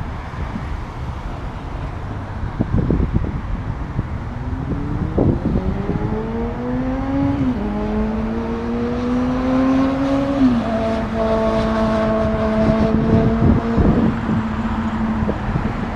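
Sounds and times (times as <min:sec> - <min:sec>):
car accelerating through gears: 0:04.2 - 0:15.9.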